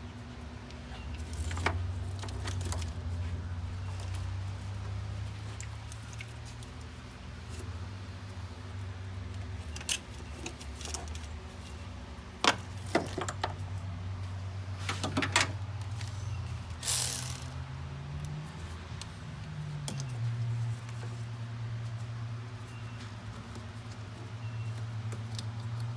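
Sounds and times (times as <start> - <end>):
metallic tool clinks: 16.8 - 17.6.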